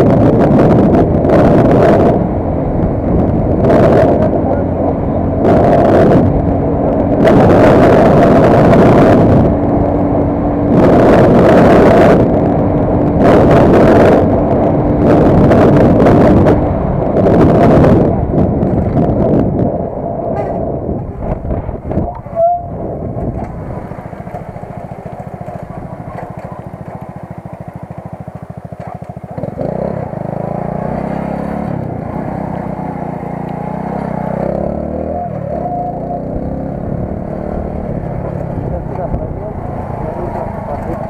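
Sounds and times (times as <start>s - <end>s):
vehicle engine running: 0.0s - 41.0s
squeak: 22.1s - 22.7s.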